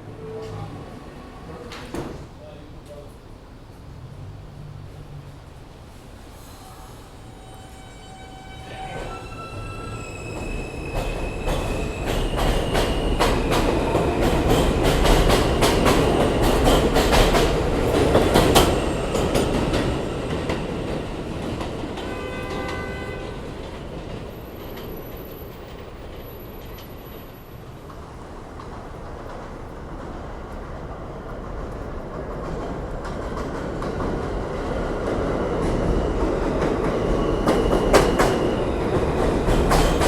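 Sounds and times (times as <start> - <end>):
train whining tones: 6.1 - 27.5.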